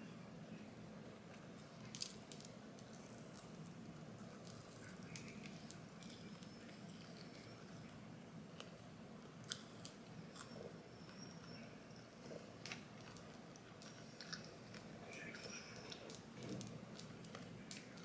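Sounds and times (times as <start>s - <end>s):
chewing with small crunches: 1.0s - 18.0s.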